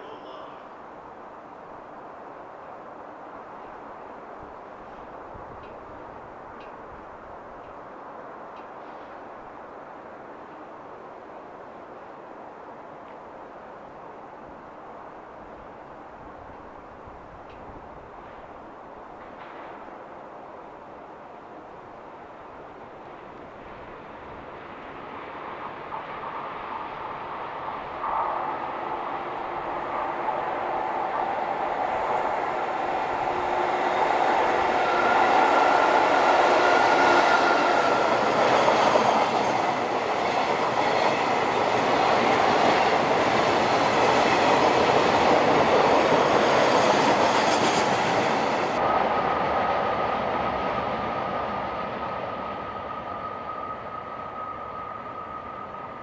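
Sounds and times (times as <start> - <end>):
freight train passing: 0.0 - 56.0
steel wheels on rail: 3.6 - 9.4, 17.4 - 20.1, 22.6 - 56.0.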